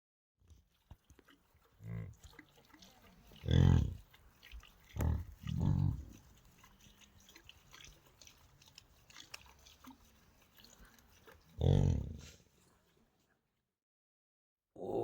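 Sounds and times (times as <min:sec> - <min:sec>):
low animal grunt: 0:01.7 - 0:02.2, 0:03.3 - 0:04.1, 0:04.9 - 0:06.4, 0:11.5 - 0:12.5, 0:14.8 - 0:15.0.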